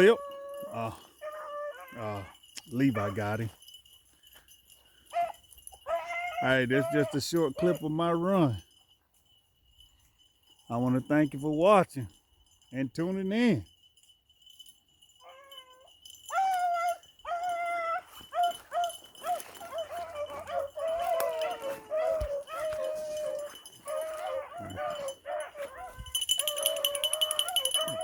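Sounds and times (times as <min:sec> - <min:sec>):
beagles baying: 0:00.0 - 0:08.6, 0:15.2 - 0:28.0
high metallic jingling: 0:00.0 - 0:28.0.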